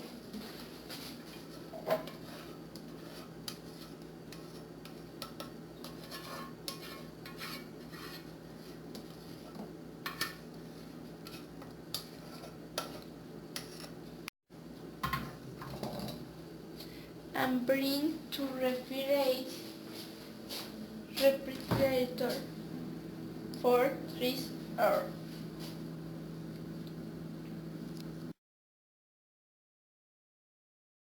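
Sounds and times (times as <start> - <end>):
low hum: 19.6 - 28.4.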